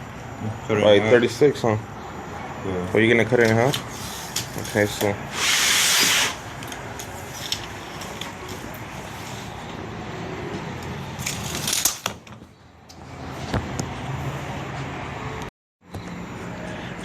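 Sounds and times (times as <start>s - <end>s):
low shop noise: 0.0s - 17.0s
sheet metal scraping hiss: 5.3s - 6.4s.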